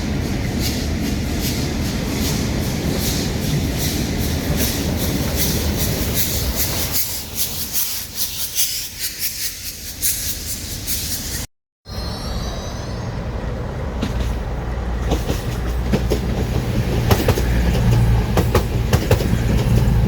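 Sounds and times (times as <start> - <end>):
train rumbling: 0.0 - 20.0
wheels clattering on track: 13.8 - 20.0.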